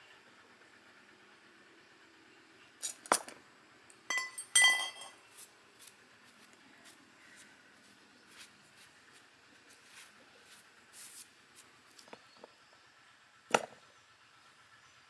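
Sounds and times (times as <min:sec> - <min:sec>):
metal objects clinking together: 0:02.8 - 0:05.3.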